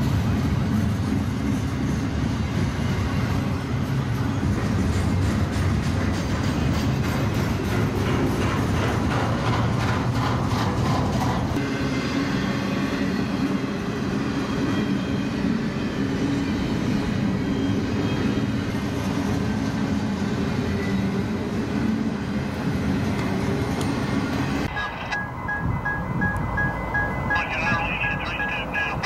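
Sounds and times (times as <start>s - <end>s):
freight cars rolling on rails: 0.0s - 29.0s
wheels clicking over rail joints: 4.8s - 11.6s.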